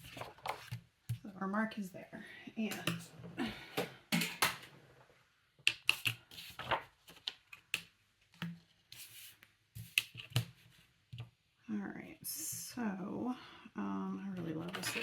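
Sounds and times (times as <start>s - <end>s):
paper rustling: 0.0s - 0.8s, 5.9s - 7.7s.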